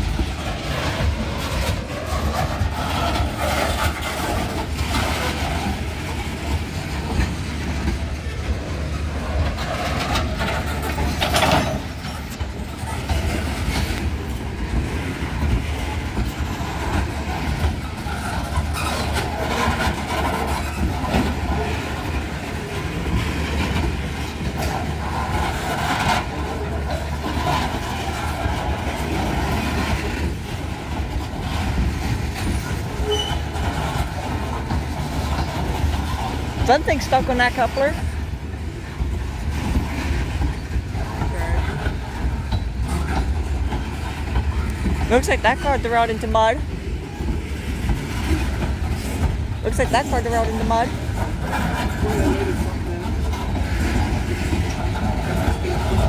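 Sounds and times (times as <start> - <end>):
train rumble: 0.0 - 56.0
train wheels clattering over rails: 0.0 - 56.0.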